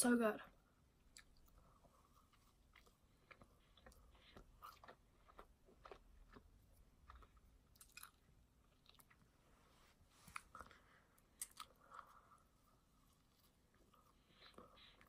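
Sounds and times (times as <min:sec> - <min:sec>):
faint chewing: 0:01.0 - 0:15.0
mouth clicks and smacks: 0:11.4 - 0:12.0.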